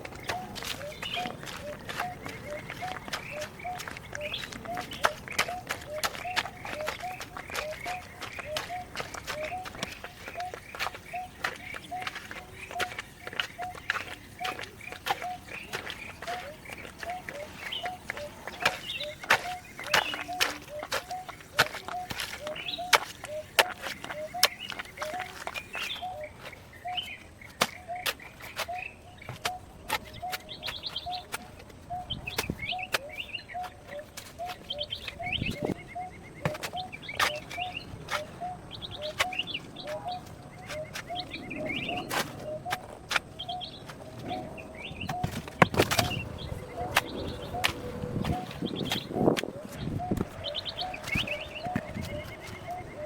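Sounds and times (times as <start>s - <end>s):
birds chirping and trilling: 0.0s - 53.0s.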